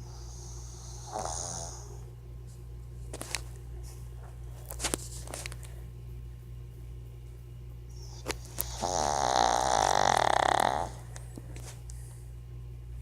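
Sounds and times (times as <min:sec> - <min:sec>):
dog snoring: 0:00.0 - 0:02.1, 0:08.0 - 0:11.2
steady low hum: 0:00.0 - 0:13.0.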